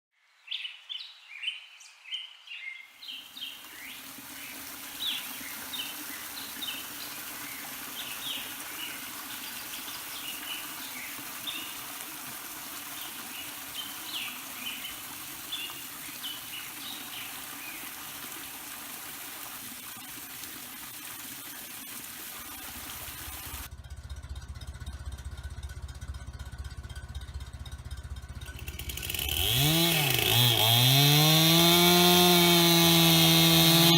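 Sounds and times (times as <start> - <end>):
small birds chirping: 0.2 - 12.0, 12.9 - 18.0
low rumble: 23.7 - 28.8.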